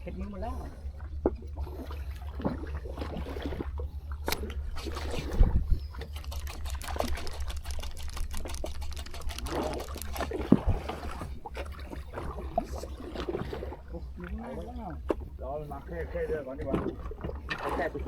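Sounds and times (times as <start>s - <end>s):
water splashing and trickling: 0.0s - 18.0s.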